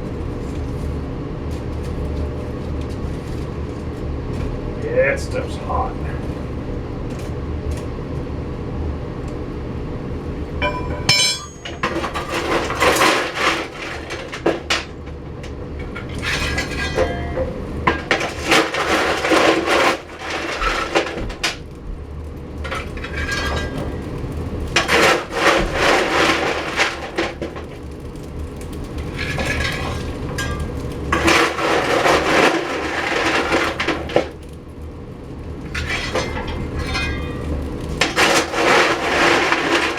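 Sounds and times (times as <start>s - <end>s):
coal lumps clattering: 10.5s - 21.7s, 22.4s - 34.6s, 35.5s - 39.9s
metal clinks: 10.6s - 12.0s
metal shovel scraping: 10.6s - 14.7s, 35.8s - 39.9s.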